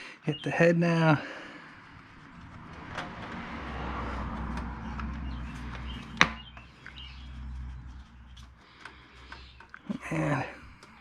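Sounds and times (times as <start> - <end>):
handling noise of engine parts: 1.7 - 11.0
rustling and small ticks: 4.3 - 11.0.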